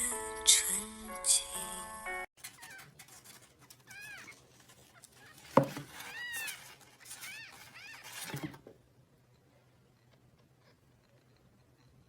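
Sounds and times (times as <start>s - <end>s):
small animal calling: 2.4s - 8.6s.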